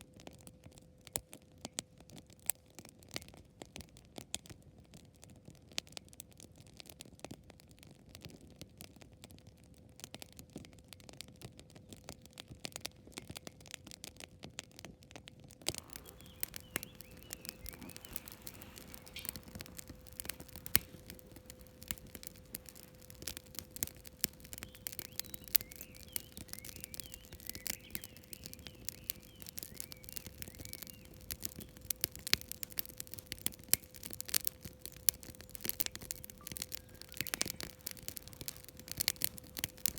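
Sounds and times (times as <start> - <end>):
campfire crackling and popping: 15.6 - 39.9.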